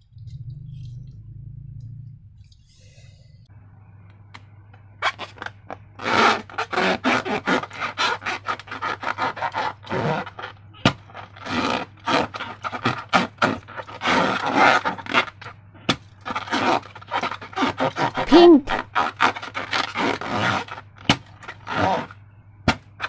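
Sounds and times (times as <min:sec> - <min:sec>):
balloons and slime scraping: 0:05.0 - 0:23.0.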